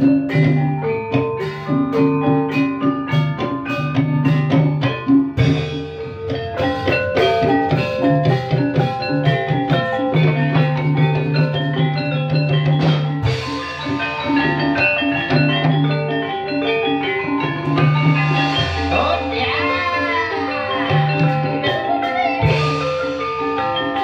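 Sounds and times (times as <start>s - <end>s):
drums: 0.0s - 24.0s
struck ringing melodic notes: 0.0s - 24.0s.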